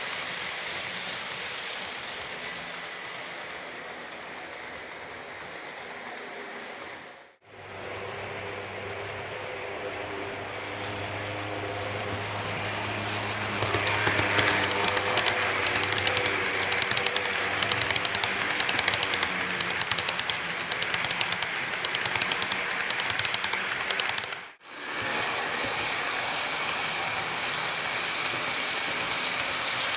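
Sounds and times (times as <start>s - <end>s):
model train motor hum: 0.0s - 29.9s
wheels clicking over rail joints: 10.8s - 24.5s.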